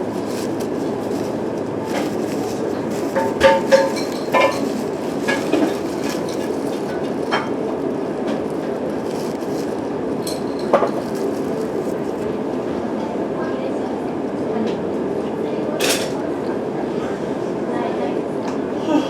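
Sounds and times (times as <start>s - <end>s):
train rumbling: 0.0s - 13.2s.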